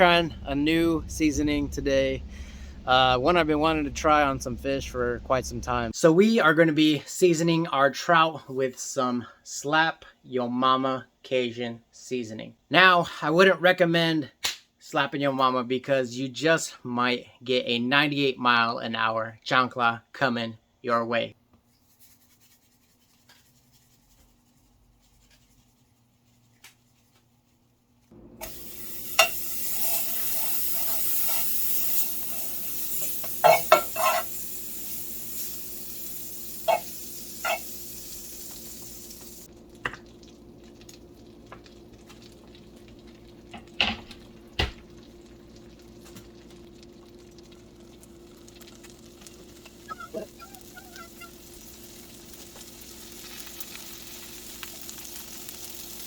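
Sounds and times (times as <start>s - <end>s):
fish sizzling in a hot pan: 28.4s - 39.5s, 40.2s - 56.0s.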